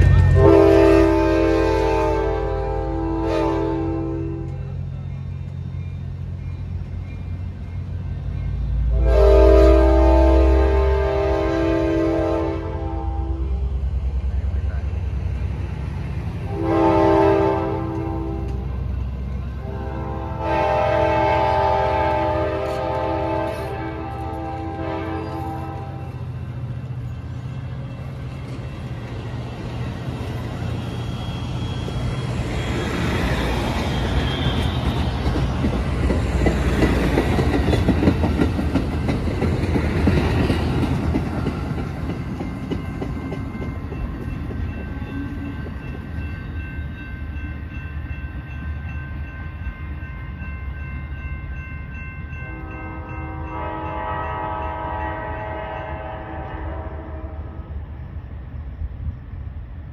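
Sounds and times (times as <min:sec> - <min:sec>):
locomotive air horn: 0:00.0 - 0:04.8, 0:08.9 - 0:13.7, 0:16.5 - 0:18.8, 0:19.6 - 0:26.2, 0:52.5 - 0:57.8
train rumble and wheel clatter: 0:00.0 - 0:59.9.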